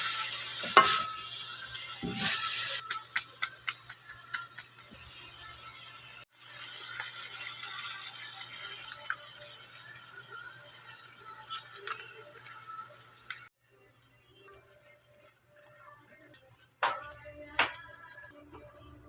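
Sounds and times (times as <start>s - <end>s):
chicken sizzling in a pan: 0.0s - 13.5s.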